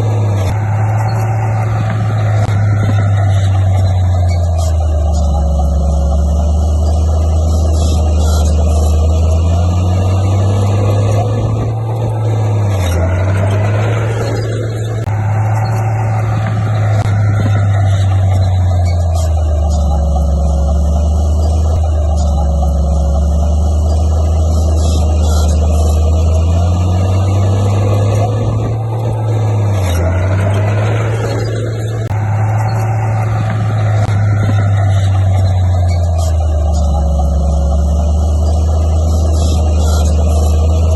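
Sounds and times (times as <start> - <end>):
bulldozer diesel engine drone: 0.0 - 40.9.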